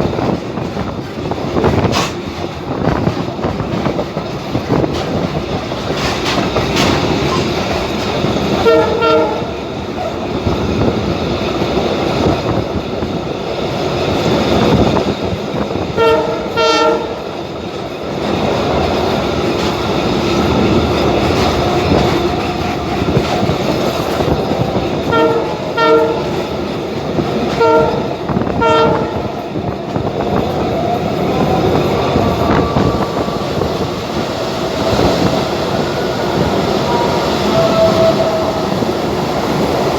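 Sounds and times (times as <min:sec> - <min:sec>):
train rumbling on track: 0:00.0 - 0:39.9
train horn blasts: 0:08.5 - 0:09.6, 0:16.0 - 0:17.3, 0:25.0 - 0:26.5, 0:27.5 - 0:29.4, 0:36.4 - 0:39.0.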